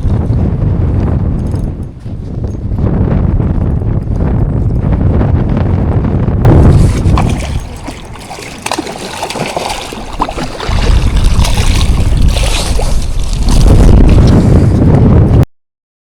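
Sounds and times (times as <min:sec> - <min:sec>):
wind buffeting microphone: 0:00.0 - 0:15.4
water splashing and lapping: 0:06.5 - 0:14.4.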